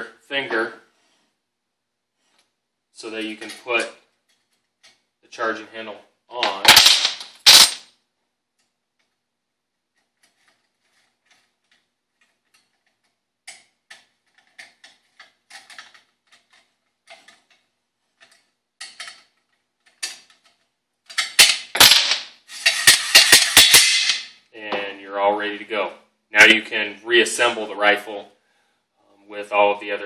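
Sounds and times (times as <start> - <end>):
sharp metal clacks: 6.5 - 7.8, 21.2 - 24.4
metal clicks and rattles: 10.0 - 24.2.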